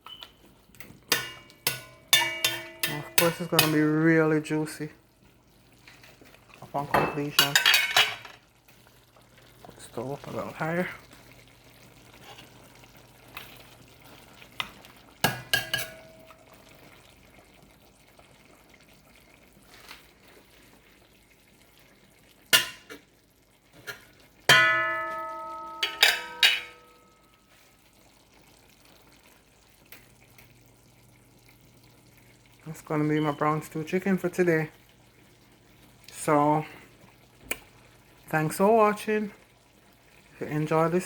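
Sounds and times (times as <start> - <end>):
food sizzling in a pot: 0.0 - 41.0
metal cookware clanking: 1.1 - 4.0, 6.8 - 8.4, 15.2 - 16.5, 22.6 - 23.1, 23.8 - 27.4.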